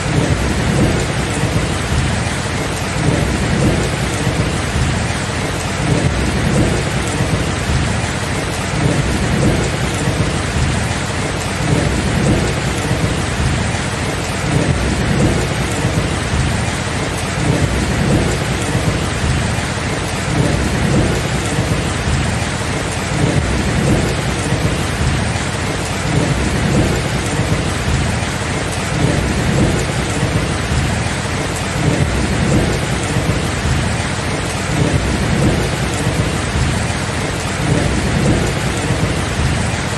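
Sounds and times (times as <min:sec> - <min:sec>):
heavy rain falling: 0:00.0 - 0:39.9
low rumbling thunder: 0:00.0 - 0:39.9.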